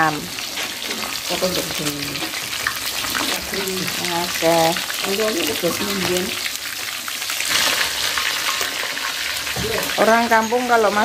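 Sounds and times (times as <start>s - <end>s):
chicken sizzling in hot oil: 0.0s - 11.0s
person's voice: 9.6s - 11.0s.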